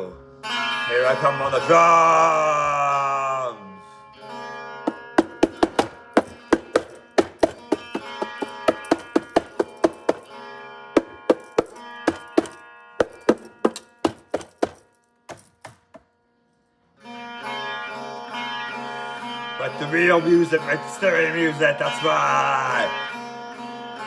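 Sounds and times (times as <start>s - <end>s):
drum hits: 4.9s - 10.3s, 11.0s - 16.0s.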